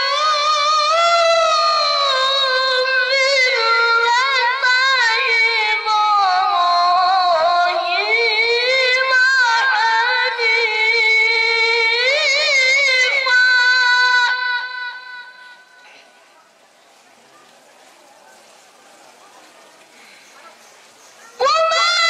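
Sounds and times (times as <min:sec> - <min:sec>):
child chanting recitation: 0:00.0 - 0:15.7.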